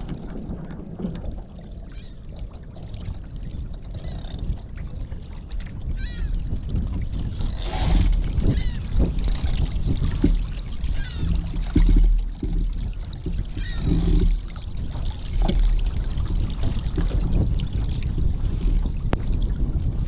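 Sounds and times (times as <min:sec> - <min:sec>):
water slapping boat hull: 0:00.0 - 0:20.0
wind buffeting microphone: 0:00.0 - 0:20.0
knocks from boat: 0:06.7 - 0:19.9.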